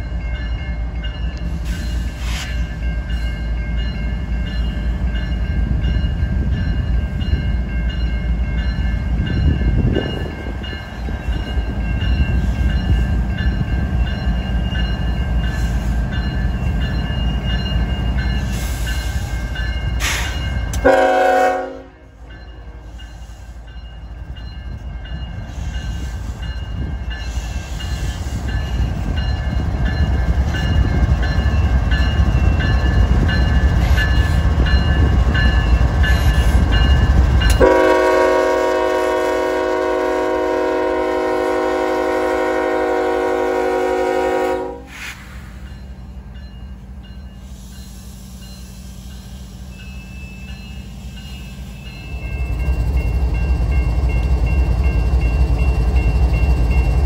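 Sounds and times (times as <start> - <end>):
train rumbling past: 0.0 - 57.0
locomotive air horn blast: 20.0 - 22.2, 37.6 - 45.2.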